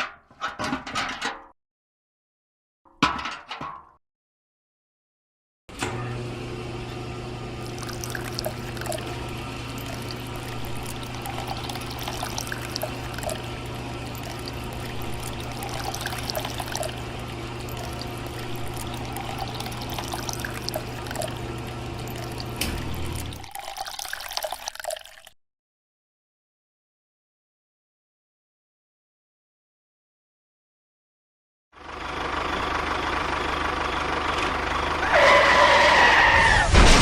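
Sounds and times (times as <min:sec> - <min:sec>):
water pouring and splashing: 0:07.6 - 0:25.4.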